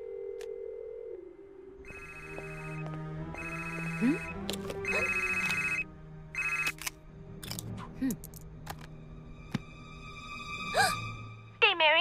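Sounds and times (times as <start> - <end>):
background music: 0.2 - 12.0
phone ringtone ringing: 1.8 - 5.8, 6.4 - 6.8.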